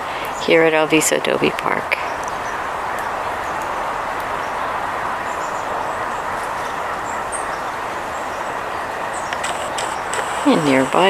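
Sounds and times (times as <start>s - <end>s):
steady rushing background noise: 2.3s - 11.0s.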